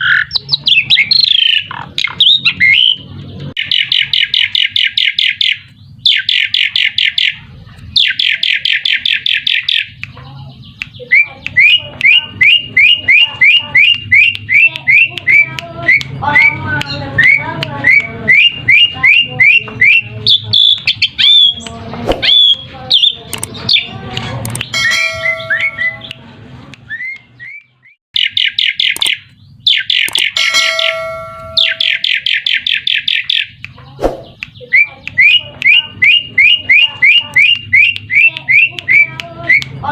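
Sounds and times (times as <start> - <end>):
starling rattling chatter: 6.2 - 27.5
sliding whistled bird notes: 11.1 - 23.9.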